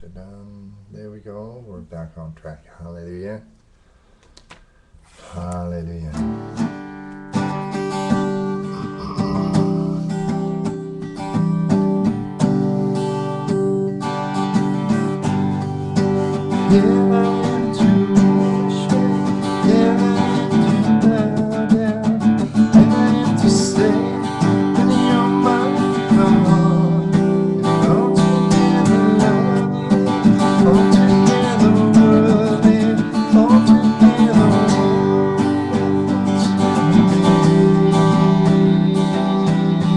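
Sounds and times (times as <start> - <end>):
acoustic guitar strumming: 5.0 - 39.9.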